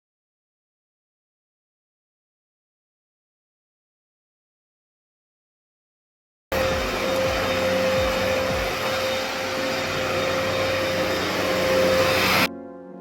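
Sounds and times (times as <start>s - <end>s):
vacuum cleaner running: 6.5s - 12.5s
soft music: 6.5s - 13.0s.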